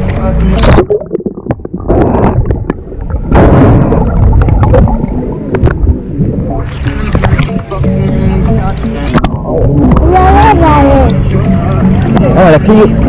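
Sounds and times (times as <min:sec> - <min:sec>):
steady low rumble: 0:00.0 - 0:11.4
rushing splashing water: 0:00.6 - 0:07.7
wind on microphone: 0:00.6 - 0:07.8.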